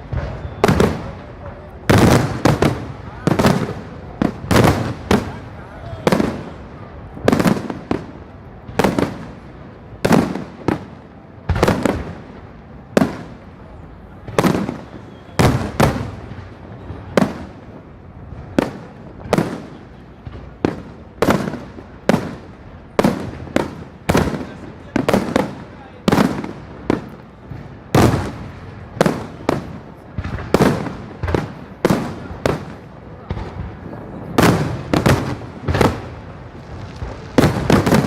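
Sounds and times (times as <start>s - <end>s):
fireworks bangs with echo: 0.0s - 38.0s.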